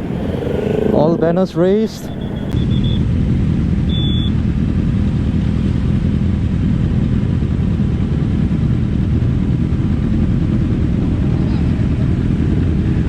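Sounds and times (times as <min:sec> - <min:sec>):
motorcycles rumbling: 0:00.0 - 0:02.6
high beep: 0:02.1 - 0:03.0.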